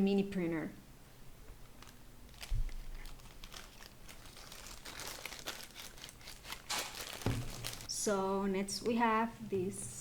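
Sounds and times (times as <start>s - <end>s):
packaging crinkling: 1.5s - 7.9s.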